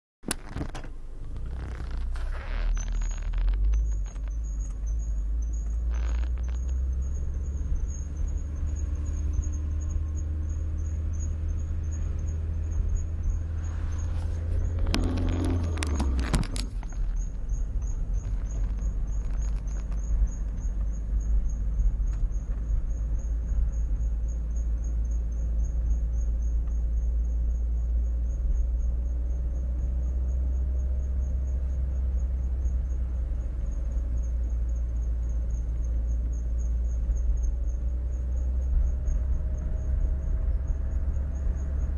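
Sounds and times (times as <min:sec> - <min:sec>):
road rumble: 0:00.2 - 0:41.9
high-pitched brake squeak: 0:01.4 - 0:26.6.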